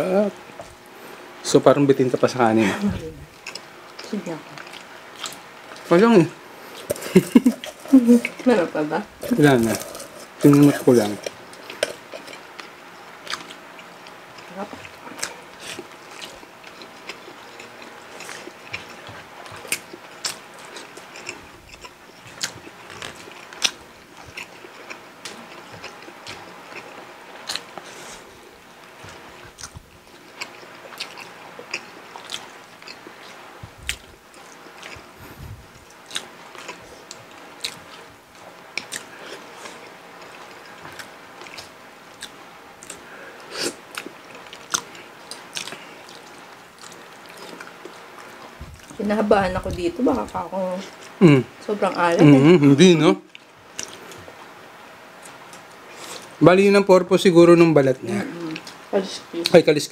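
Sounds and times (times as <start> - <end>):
people chewing: 2.1 - 56.4, 58.0 - 59.6.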